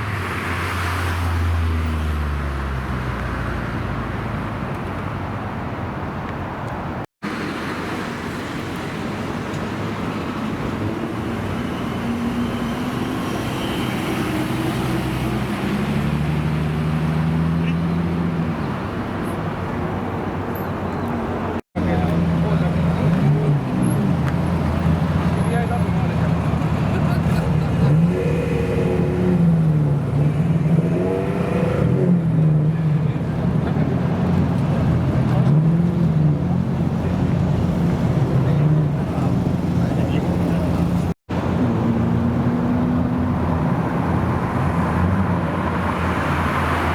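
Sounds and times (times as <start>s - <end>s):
surrounding traffic: 0.0s - 46.9s
car engines running: 7.3s - 46.9s.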